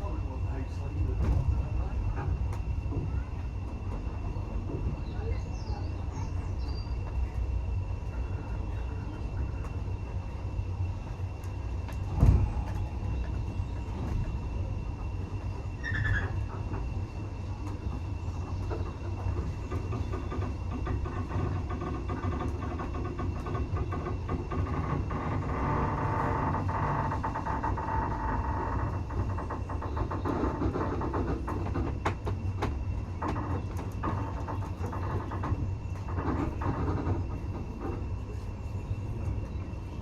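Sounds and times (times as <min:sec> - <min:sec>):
railway carriage rumble: 0:00.0 - 0:40.0
thud: 0:12.1 - 0:12.6
wheels squealing: 0:15.7 - 0:17.1.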